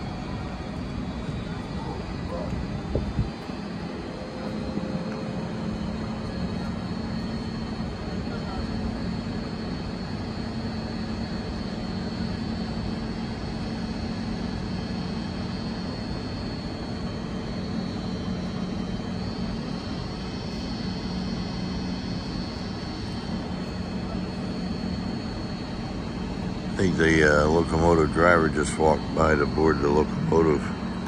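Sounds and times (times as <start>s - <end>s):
train equipment drone: 0.0s - 31.0s
thin high whine: 19.4s - 31.0s.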